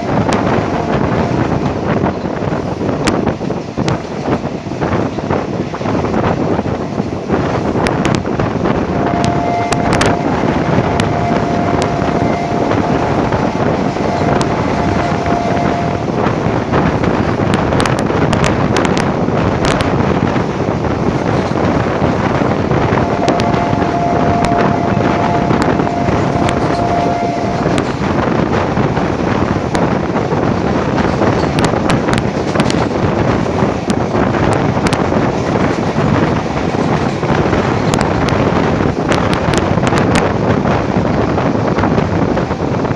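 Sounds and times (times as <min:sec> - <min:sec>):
train rumbling: 0:00.0 - 0:42.9
wind buffeting microphone: 0:00.0 - 0:42.9
steady high tone: 0:08.9 - 0:16.2, 0:22.9 - 0:28.2.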